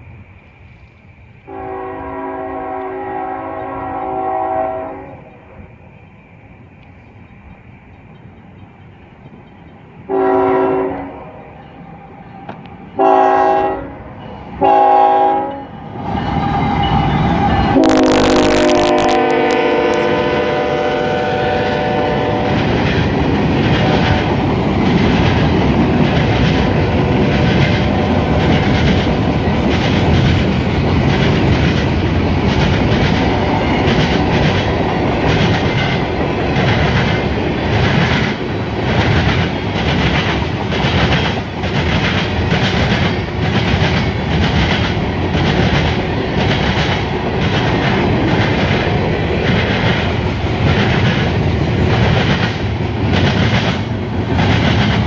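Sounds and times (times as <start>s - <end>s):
locomotive air horn blasts: 1.5s - 5.2s, 10.1s - 11.2s, 13.0s - 15.8s, 17.6s - 22.6s.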